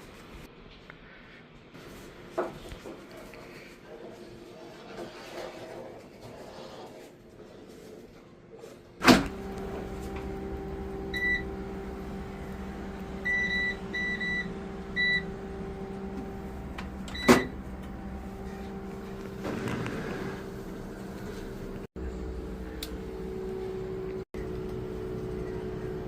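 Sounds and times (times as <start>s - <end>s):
appliance electrical hum: 8.5s - 26.0s.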